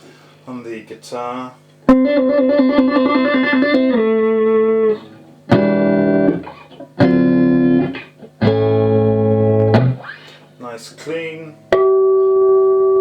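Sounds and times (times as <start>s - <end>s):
guitar chords ringing: 1.8s - 10.3s, 11.2s - 13.0s
clean electric guitar: 1.8s - 10.6s, 11.5s - 13.0s.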